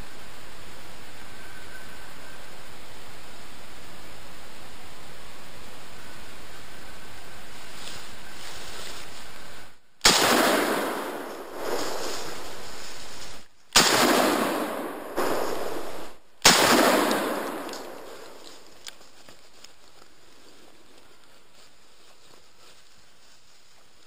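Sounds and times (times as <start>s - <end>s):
steady hiss: 0.0s - 24.0s
rifle shots echoing: 10.0s - 12.6s, 13.7s - 18.9s.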